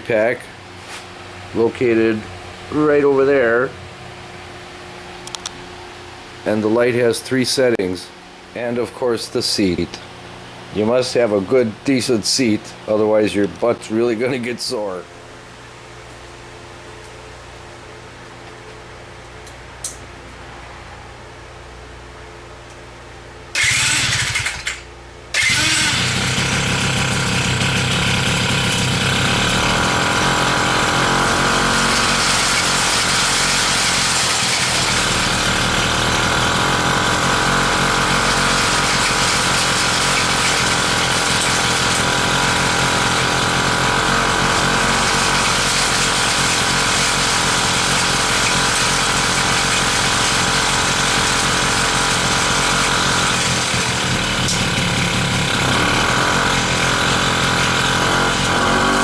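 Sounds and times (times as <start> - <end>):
small gas engine running: 23.5 - 59.0.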